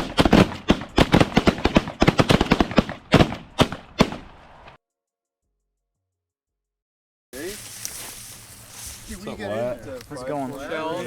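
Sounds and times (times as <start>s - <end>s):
shotgun blasts: 0.0s - 4.6s.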